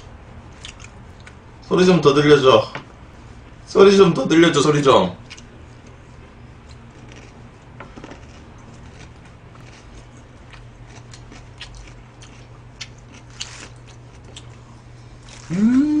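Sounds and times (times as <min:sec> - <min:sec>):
steady low hum: 0:00.0 - 0:16.0
person chewing food: 0:00.5 - 0:01.4, 0:05.2 - 0:06.0, 0:06.6 - 0:15.8
small clicks and crunches: 0:07.0 - 0:09.8.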